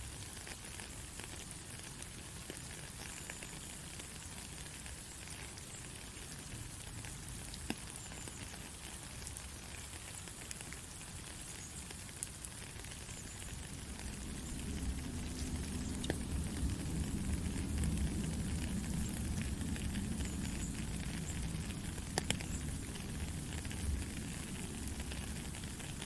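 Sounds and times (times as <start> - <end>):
steady rain hiss: 0.0 - 26.0
sharp raindrop impacts: 12.8 - 26.0.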